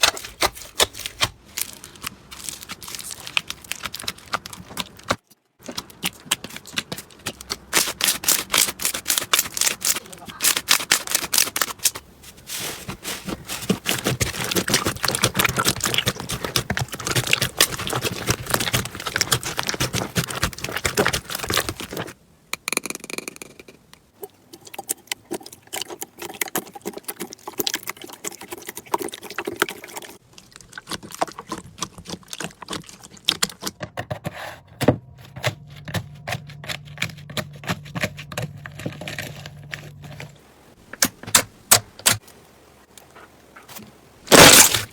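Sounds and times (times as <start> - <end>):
slime crackling and popping: 0.0 - 12.0, 13.5 - 22.2, 44.3 - 44.9.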